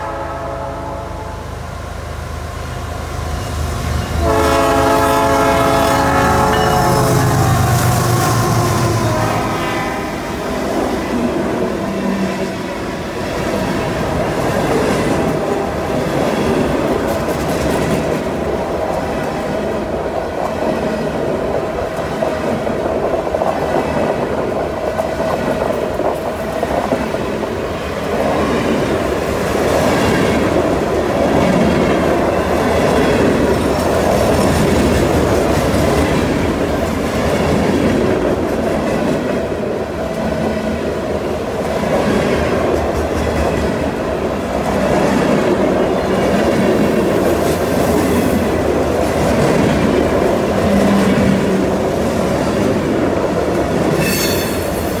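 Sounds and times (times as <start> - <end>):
freight train wheels rumbling: 0.0 - 55.0
wheel squeal: 54.0 - 54.9.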